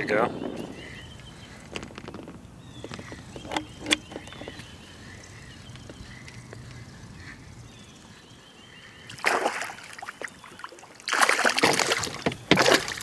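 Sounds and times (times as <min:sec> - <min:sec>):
fish thrashing and splashing: 0:09.1 - 0:13.0.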